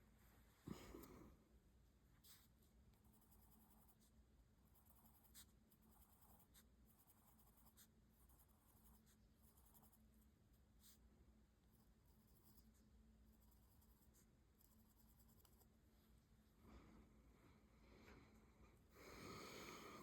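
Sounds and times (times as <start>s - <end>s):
pencil scratching on paper: 2.2s - 11.1s, 11.7s - 15.7s.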